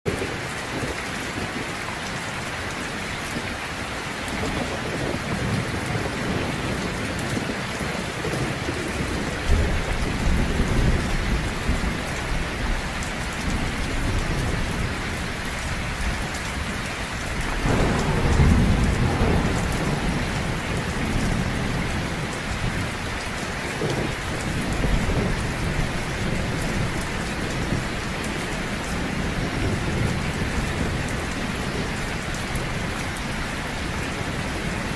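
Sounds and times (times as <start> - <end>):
heavy rain falling: 0.1 - 34.9
thunder rolling: 4.3 - 33.0.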